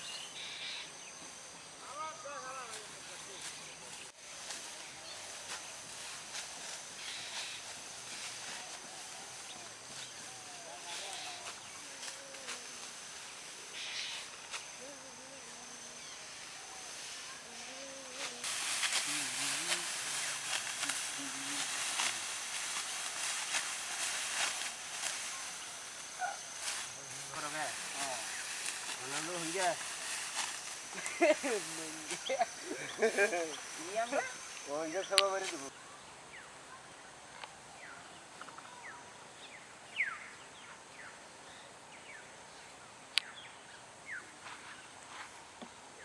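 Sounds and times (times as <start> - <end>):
steady rustling hiss: 0.0 - 46.0
sickles cutting rice stalks: 2.6 - 35.7
birds chirping: 18.5 - 35.7.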